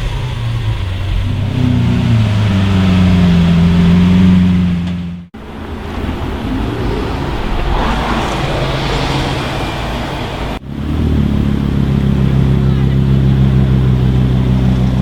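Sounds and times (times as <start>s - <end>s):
car engine running: 0.0s - 15.0s
street traffic noise: 0.0s - 15.0s
car driving past: 1.6s - 12.6s.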